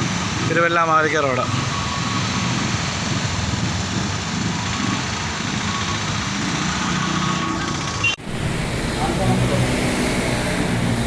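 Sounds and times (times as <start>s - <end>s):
vehicle engine running: 7.8s - 11.0s
rush of noise: 8.2s - 11.0s.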